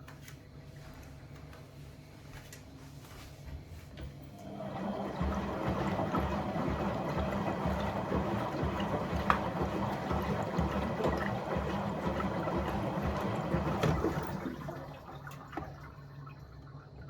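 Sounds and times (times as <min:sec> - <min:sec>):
water sloshing in an appliance: 0:04.2 - 0:17.0.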